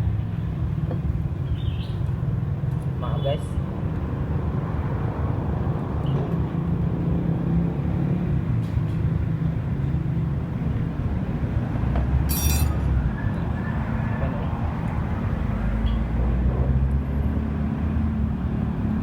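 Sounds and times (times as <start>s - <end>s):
motor vehicle rumble: 0.0s - 19.0s
metallic clink: 12.3s - 12.9s.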